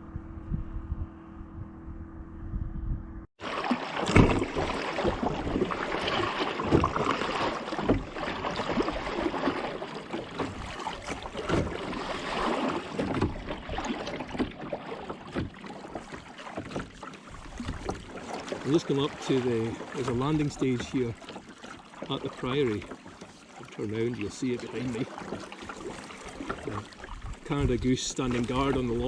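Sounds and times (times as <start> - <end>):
paddle splashing in water: 3.4 - 29.0
water lapping against hull: 3.4 - 29.0.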